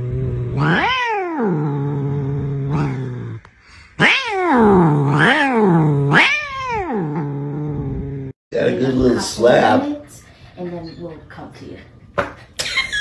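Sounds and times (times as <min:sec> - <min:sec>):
cat caterwauling: 0:00.6 - 0:01.8, 0:04.0 - 0:07.5.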